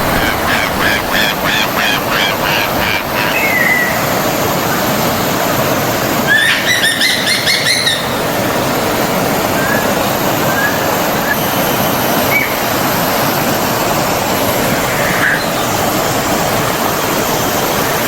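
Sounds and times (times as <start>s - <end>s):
birds chirping: 0.0s - 4.3s, 6.3s - 8.4s
stream water rushing: 0.0s - 18.0s.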